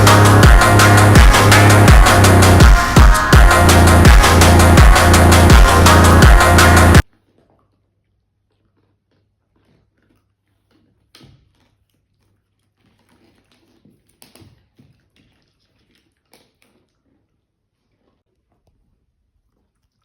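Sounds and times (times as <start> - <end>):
pet chewing: 7.1 - 20.0.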